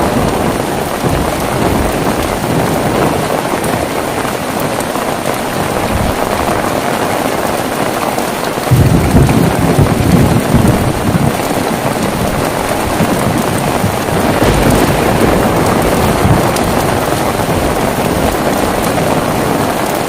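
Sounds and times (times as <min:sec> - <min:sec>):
low rumble of thunder: 0:00.0 - 0:04.0, 0:08.6 - 0:20.0
heavy rain falling: 0:00.0 - 0:20.0.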